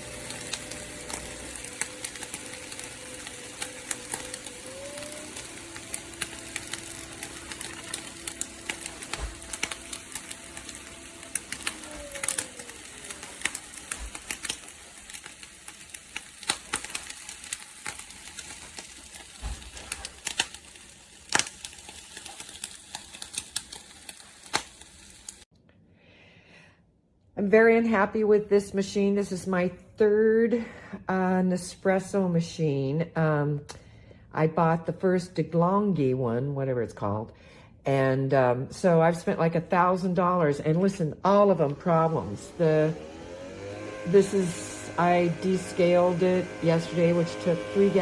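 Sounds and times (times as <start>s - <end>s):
coffee machine humming: 0.0s - 25.5s, 41.4s - 48.0s
crackling and clicking: 0.0s - 25.5s.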